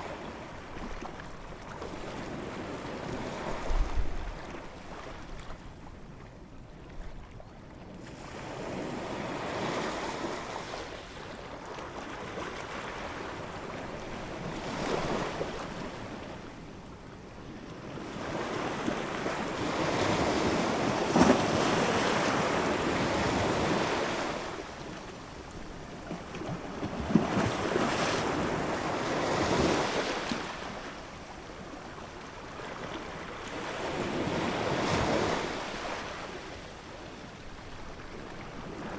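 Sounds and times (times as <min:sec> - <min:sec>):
ocean waves breaking on shore: 0:17.6 - 0:37.4.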